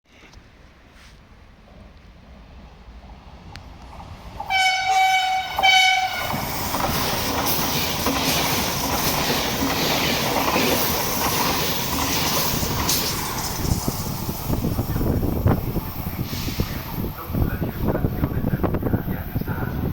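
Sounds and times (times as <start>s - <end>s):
train passing at speed: 1.3s - 19.9s
train horn blasts: 4.5s - 6.4s.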